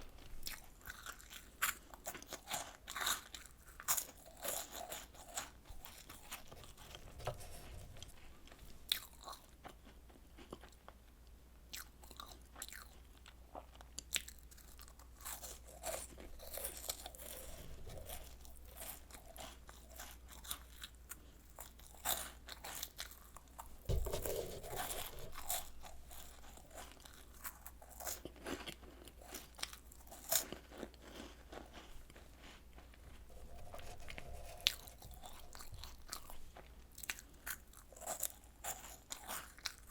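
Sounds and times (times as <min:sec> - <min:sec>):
chewing crunchy biscuits: 0:00.0 - 0:39.9
low thump: 0:23.9 - 0:25.1.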